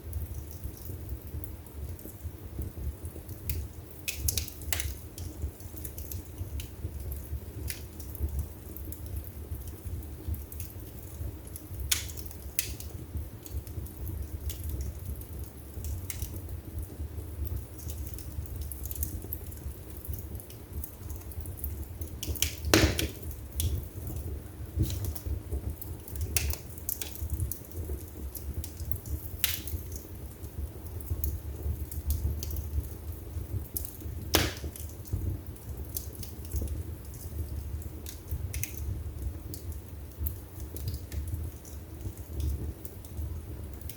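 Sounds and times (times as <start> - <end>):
fire flames rumbling: 0.0 - 43.9
wood fire crackling and popping: 0.0 - 43.9.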